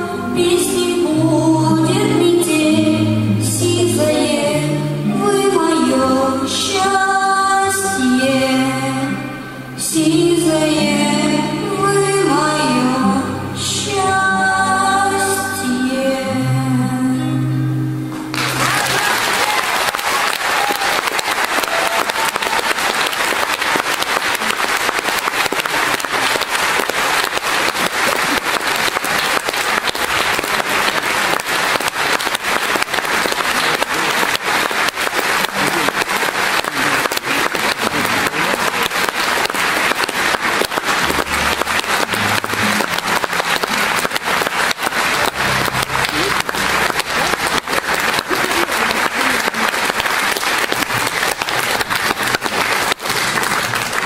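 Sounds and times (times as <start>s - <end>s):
audience applauding: 18.1s - 54.0s.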